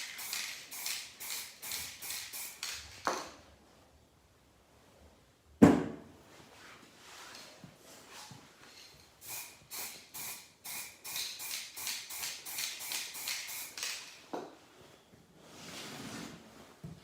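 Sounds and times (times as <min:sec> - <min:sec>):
spray hiss: 0:00.0 - 0:02.7, 0:09.2 - 0:14.0
spray can rattling: 0:00.0 - 0:03.2, 0:09.2 - 0:14.2
knock: 0:05.6 - 0:06.1.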